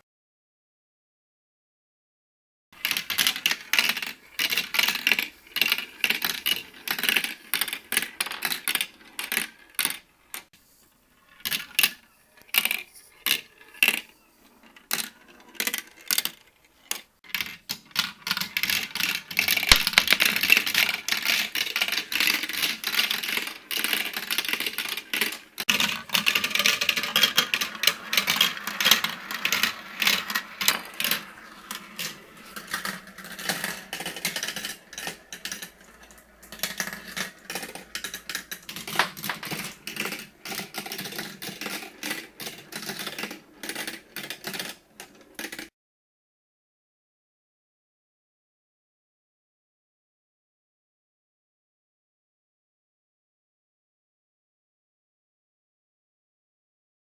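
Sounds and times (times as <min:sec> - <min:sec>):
marbles clattering down a run: 0:18.3 - 0:45.7.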